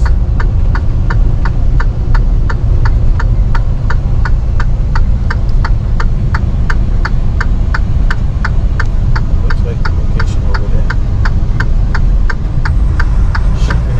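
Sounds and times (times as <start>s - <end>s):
indicator ticking: 0.0s - 13.9s
truck engine and road rumble: 0.0s - 13.9s.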